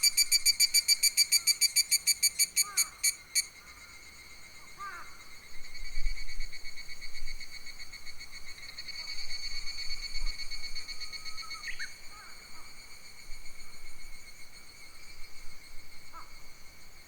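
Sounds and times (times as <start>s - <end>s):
high ringing insect drone: 0.0s - 3.6s.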